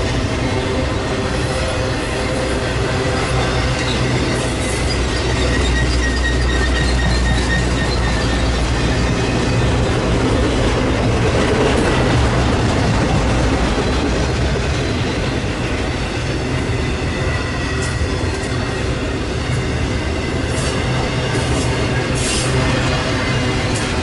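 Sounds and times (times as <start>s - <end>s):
train wheels rumbling on rail: 0.0s - 24.0s
high wheel squeal: 0.4s - 10.0s.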